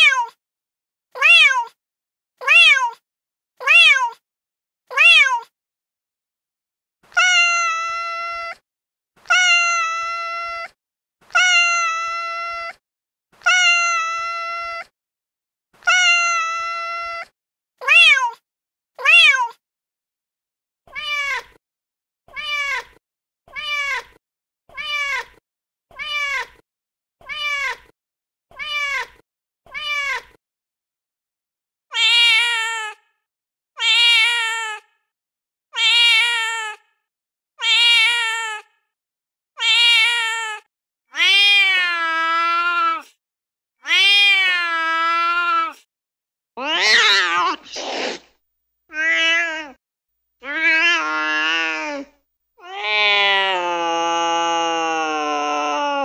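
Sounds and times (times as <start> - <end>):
cat meowing: 0.0 - 0.3, 1.2 - 1.7, 2.4 - 3.0, 3.6 - 4.2, 4.9 - 5.5, 7.1 - 8.6, 9.2 - 12.8, 13.4 - 14.9, 15.8 - 18.4, 19.0 - 19.6, 20.9 - 21.6, 22.3 - 26.6, 27.2 - 27.9, 28.5 - 30.4, 31.9 - 33.0, 33.8 - 34.9, 35.8 - 36.8, 37.6 - 38.7, 39.6 - 43.1, 43.8 - 45.8, 46.6 - 48.2, 48.9 - 49.8, 50.4 - 56.0.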